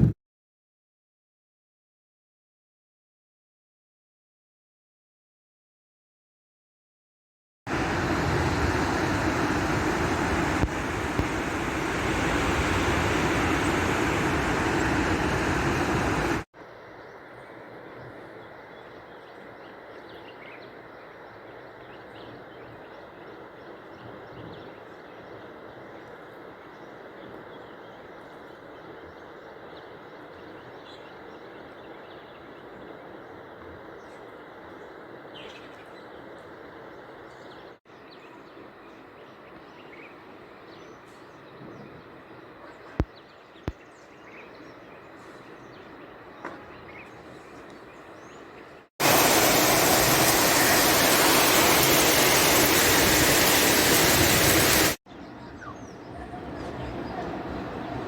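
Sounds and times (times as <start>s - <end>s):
loud steady rushing noise: 7.7s - 16.5s, 49.0s - 55.0s.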